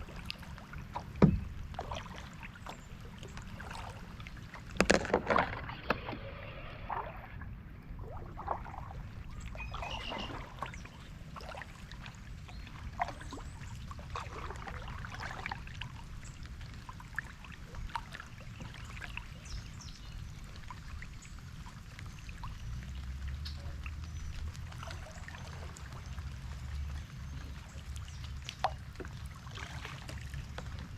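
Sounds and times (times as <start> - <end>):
water splashing around kayak: 0.0 - 30.9
water drips: 8.0 - 30.9.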